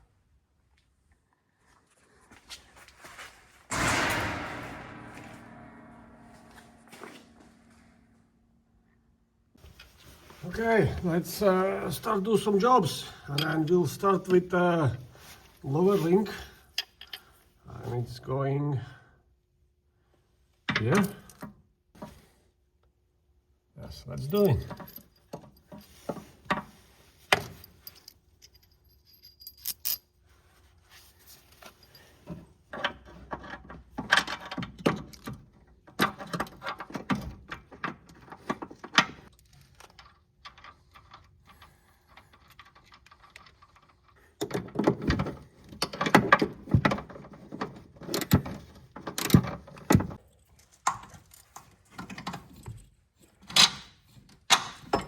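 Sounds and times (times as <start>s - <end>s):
metallic clinks of tools and bolts: 27.3s - 30.1s.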